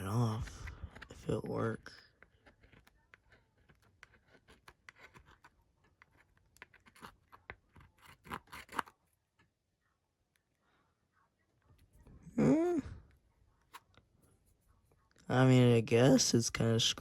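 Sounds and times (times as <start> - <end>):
tool scraping plastic: 2.1 - 9.0.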